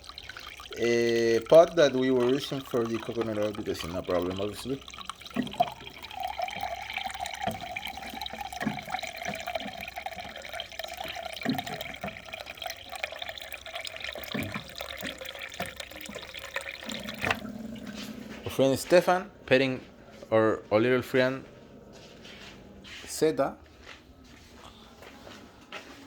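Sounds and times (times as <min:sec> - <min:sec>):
tap water running into a pot: 0:00.0 - 0:18.0.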